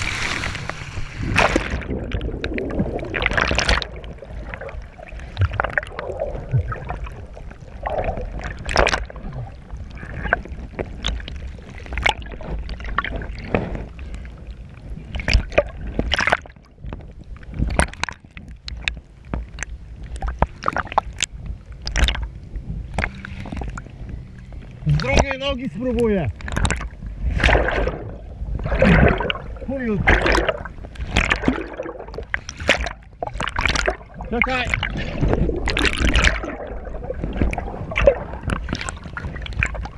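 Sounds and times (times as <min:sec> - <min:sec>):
steady low rumble: 0:00.0 - 0:39.9
water splashing and sloshing: 0:00.0 - 0:39.9.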